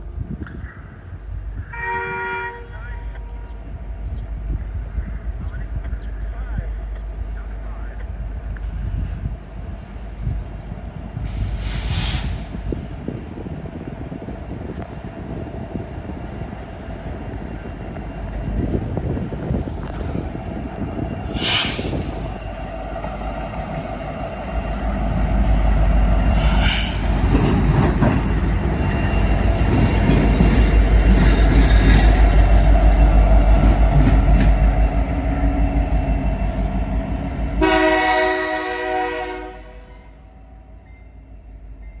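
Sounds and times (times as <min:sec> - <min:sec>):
diesel locomotives rumbling: 0:00.0 - 0:42.0
locomotive horn blast: 0:01.7 - 0:03.0, 0:37.5 - 0:40.2
wheels beating over rail joints: 0:26.2 - 0:37.1.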